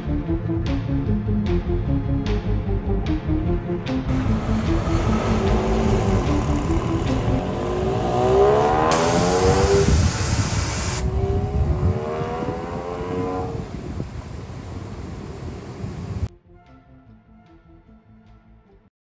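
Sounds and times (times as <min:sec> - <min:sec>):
car engine accelerating: 0:02.9 - 0:16.3
loud hiss: 0:08.8 - 0:11.1.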